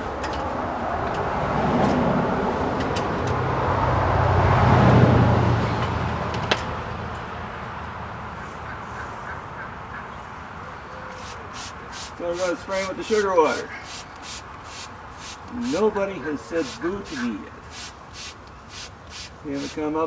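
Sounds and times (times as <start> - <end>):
vehicle driving past: 1.2 - 6.4.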